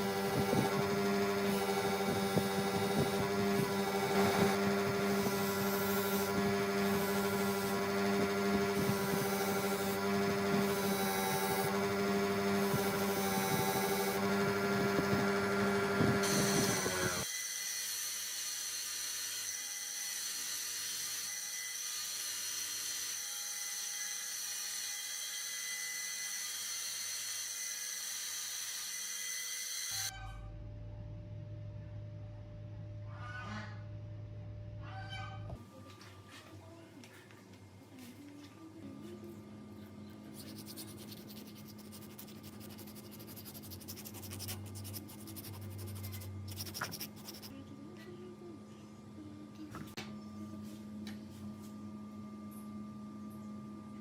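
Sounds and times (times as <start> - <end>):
power tool whirring with high whine: 0.0 - 30.1
steady low hum: 35.6 - 54.0
rapid scratching strokes on metal: 40.3 - 47.6.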